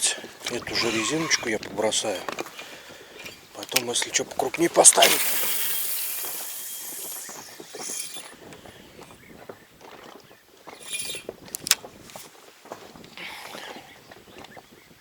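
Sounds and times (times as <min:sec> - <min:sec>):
fishing reel ticking and rattling: 0:00.0 - 0:09.3, 0:10.7 - 0:12.3
sharp clicks: 0:10.8 - 0:11.8.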